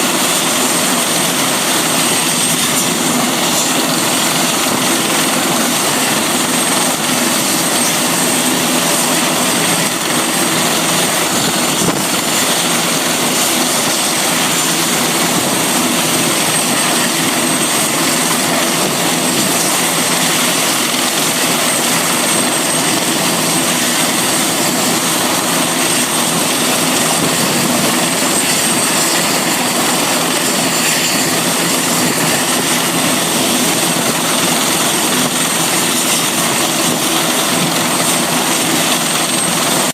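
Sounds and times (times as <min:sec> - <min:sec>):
helicopter running: 0:00.0 - 0:39.9.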